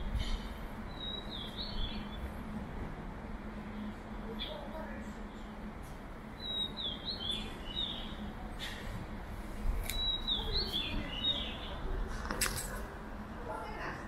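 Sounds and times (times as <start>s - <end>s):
low street hum: 0.0s - 14.0s
songbird whistling: 9.9s - 11.7s.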